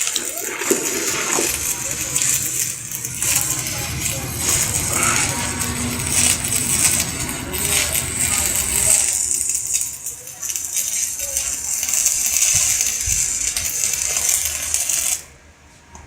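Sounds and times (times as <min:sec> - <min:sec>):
welding arc sizzling and crackling: 0:00.0 - 0:15.4.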